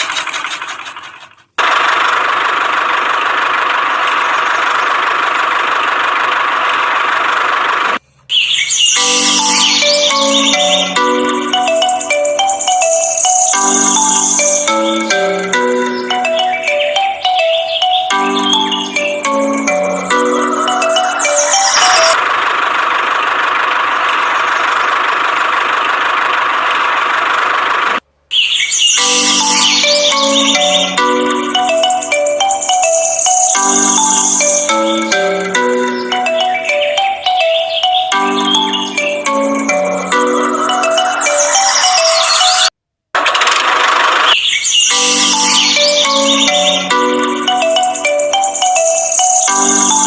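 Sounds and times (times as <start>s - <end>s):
music: 9.0s - 22.2s, 29.0s - 42.7s, 44.9s - 50.0s.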